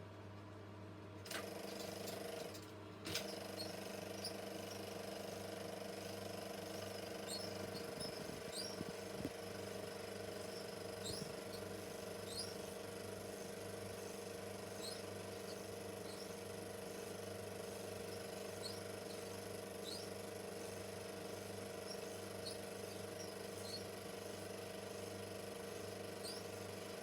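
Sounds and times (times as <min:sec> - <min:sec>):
film projector humming: 0:01.2 - 0:27.0
brief high squeaks: 0:07.2 - 0:09.0, 0:10.5 - 0:11.7, 0:12.3 - 0:12.7, 0:14.8 - 0:16.4, 0:18.1 - 0:20.1.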